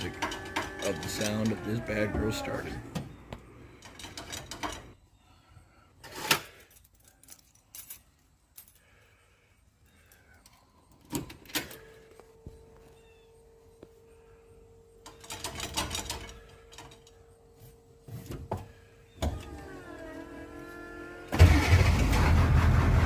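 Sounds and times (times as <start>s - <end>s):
keys jangling: 6.6s - 8.9s.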